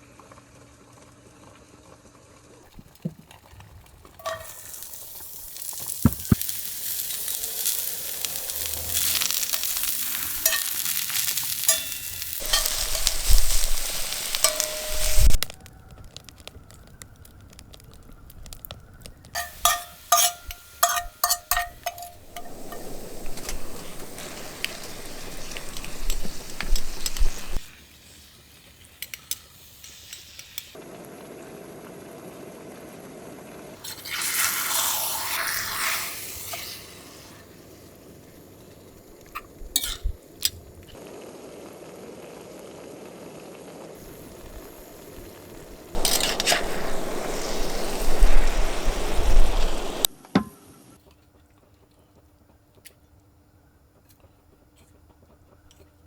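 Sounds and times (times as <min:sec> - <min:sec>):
wood fire crackling and hissing: 0:02.4 - 0:50.2
fire popping: 0:02.7 - 0:32.8, 0:35.5 - 0:41.2, 0:44.0 - 0:50.1.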